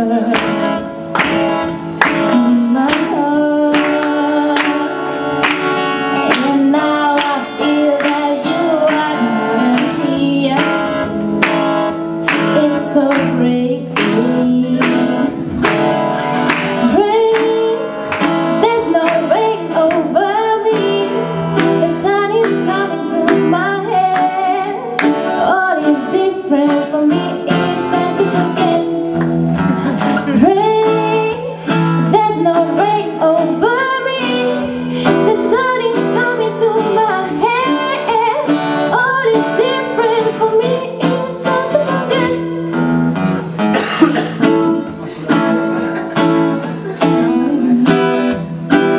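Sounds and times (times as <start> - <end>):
guitar: 0.0 - 48.9
people singing: 46.7 - 48.5.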